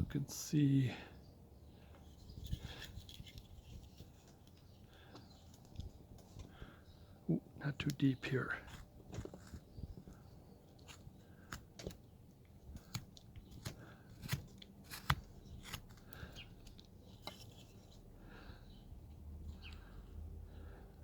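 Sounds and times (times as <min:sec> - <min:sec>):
carving blade cutting wood: 0:12.7 - 0:17.5.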